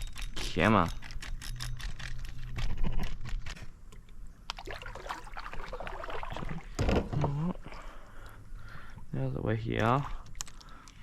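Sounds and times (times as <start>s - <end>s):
gear knocks and rattles: 0.0s - 3.8s.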